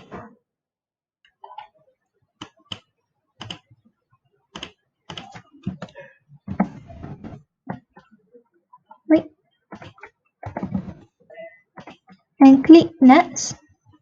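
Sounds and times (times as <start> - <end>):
computer keyboard typing: 3.4 - 3.6, 4.6 - 5.4.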